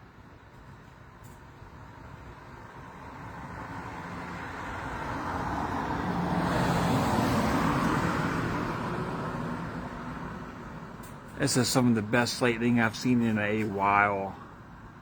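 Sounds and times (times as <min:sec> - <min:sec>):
vehicle passing by: 0:02.9 - 0:13.8.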